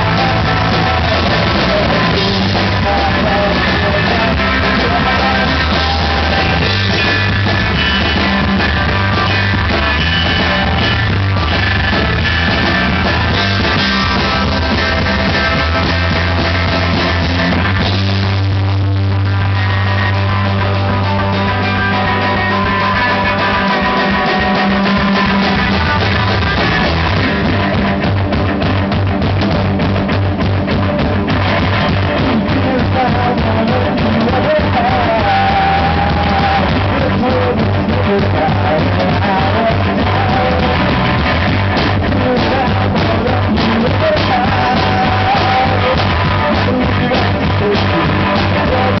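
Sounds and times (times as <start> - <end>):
person singing: 0.0 - 28.0, 31.3 - 49.0
bass guitar: 0.0 - 49.0
distorted electric guitar: 0.0 - 49.0
fast drum beat: 0.0 - 49.0.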